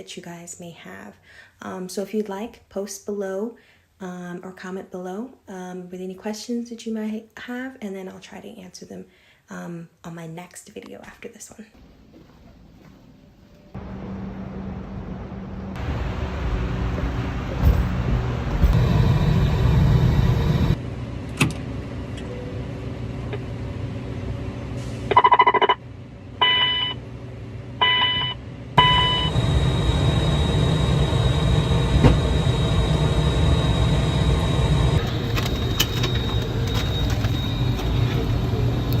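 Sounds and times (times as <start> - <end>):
airplane rumble: 11.8 - 39.0
electronic beeping tones: 25.1 - 25.8, 26.4 - 27.0, 27.8 - 29.9, 32.6 - 39.0.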